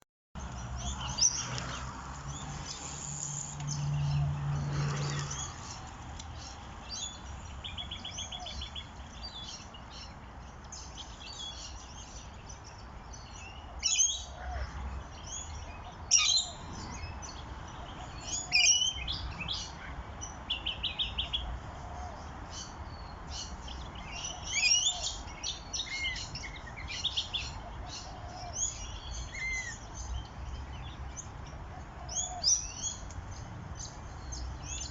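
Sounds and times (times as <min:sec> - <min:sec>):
birds chirping and whistling: 0:00.6 - 0:01.6, 0:15.2 - 0:19.8, 0:22.1 - 0:31.2.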